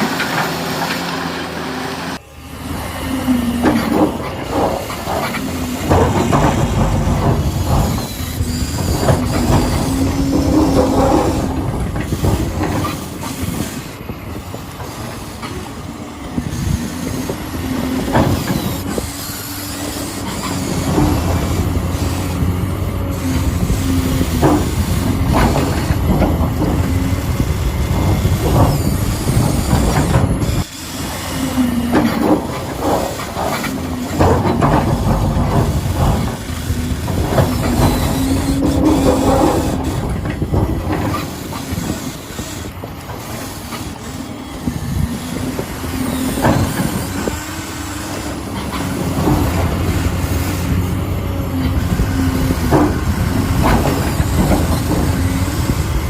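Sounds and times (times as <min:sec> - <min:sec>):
small electric motors whining: 0:02.0 - 0:56.0
mechanism clattering and rattling: 0:03.6 - 0:13.8, 0:31.9 - 0:44.0.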